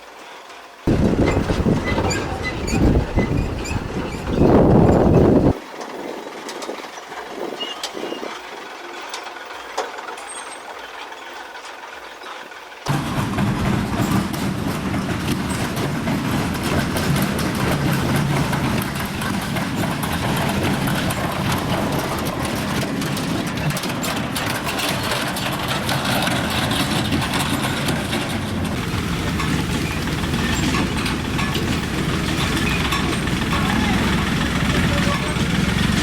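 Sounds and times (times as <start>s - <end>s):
small vehicle engine running: 0.8s - 36.0s
clicks and rattles: 12.9s - 36.0s.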